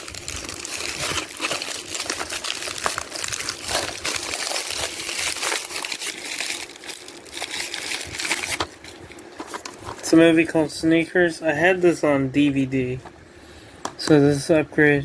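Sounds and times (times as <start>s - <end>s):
plastic wrapping crinkling: 0.0s - 10.2s.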